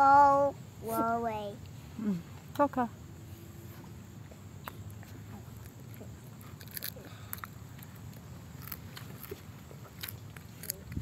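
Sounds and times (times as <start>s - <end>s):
person chewing with wet mouth smacks: 4.6s - 11.0s.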